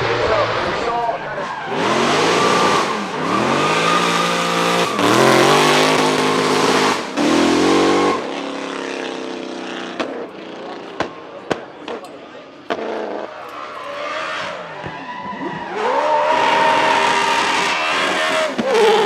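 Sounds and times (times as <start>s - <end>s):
car engine revving hard: 0.0s - 11.6s, 12.6s - 19.0s.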